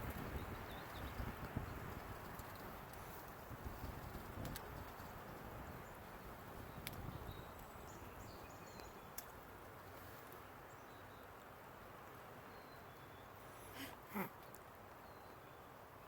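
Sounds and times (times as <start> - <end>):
small clicks: 8.8 - 9.4.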